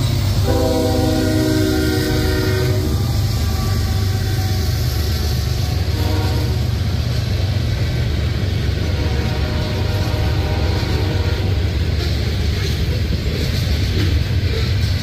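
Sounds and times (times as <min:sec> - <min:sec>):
train horn blast: 0:00.0 - 0:06.9, 0:08.8 - 0:11.8
freight train rumbling on rails: 0:00.0 - 0:15.0.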